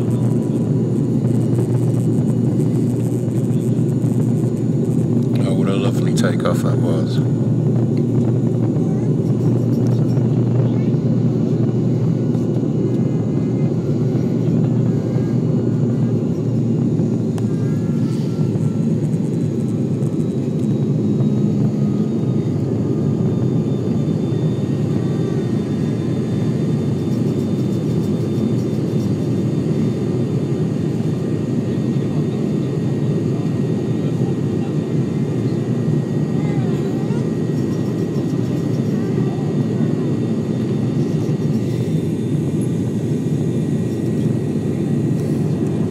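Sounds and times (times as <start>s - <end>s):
turboprop engines droning: 0.0s - 45.9s.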